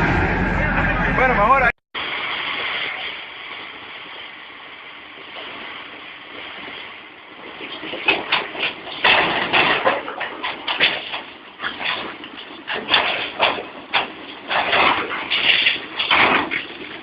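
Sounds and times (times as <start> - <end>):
truck engine running: 0.0 - 1.7.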